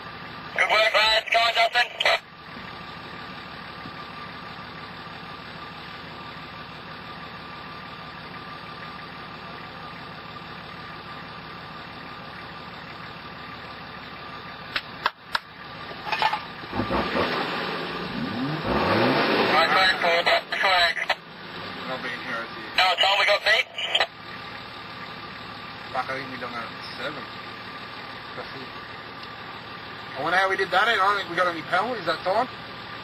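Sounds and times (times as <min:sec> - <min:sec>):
engine idling: 0:00.0 - 0:33.0
engine revving: 0:14.7 - 0:32.6.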